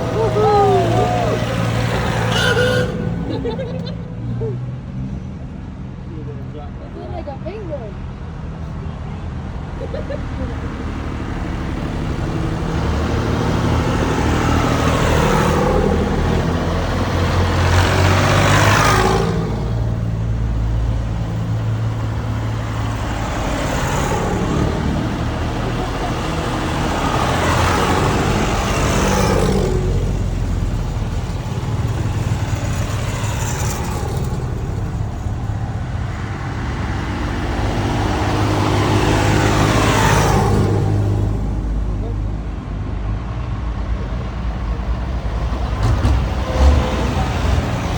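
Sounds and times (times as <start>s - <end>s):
low engine drone: 0.0s - 4.6s
tractors passing by: 0.0s - 47.9s.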